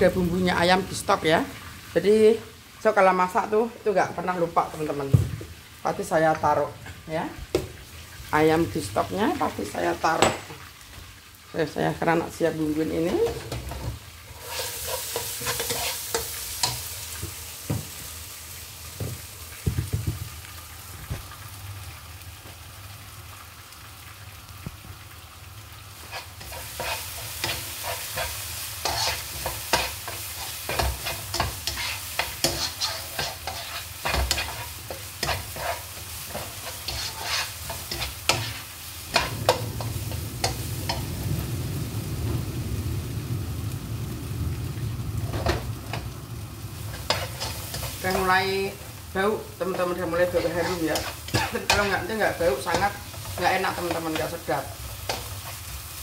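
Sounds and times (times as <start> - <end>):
paste sizzling in oil: 0.0 - 56.0
spatula scraping a wok: 13.1 - 17.4, 26.0 - 41.1, 46.8 - 48.8, 49.6 - 55.9.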